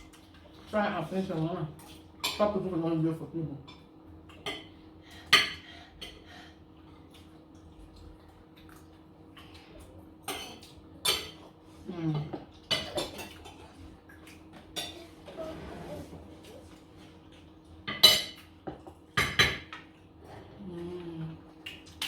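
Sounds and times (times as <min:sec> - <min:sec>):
cutlery clinking on plates: 0:17.9 - 0:19.9.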